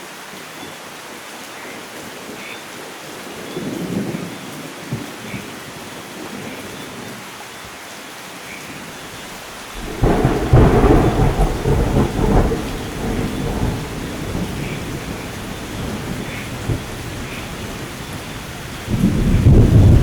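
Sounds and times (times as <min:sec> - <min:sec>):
light rain: 0:00.0 - 0:20.0
thunder clap rumbling: 0:09.2 - 0:20.0.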